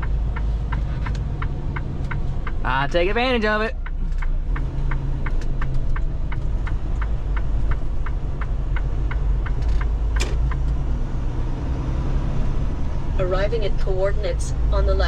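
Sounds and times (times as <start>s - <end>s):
diesel engine rumble: 0.0s - 15.0s
turn signal ticking: 0.0s - 15.0s.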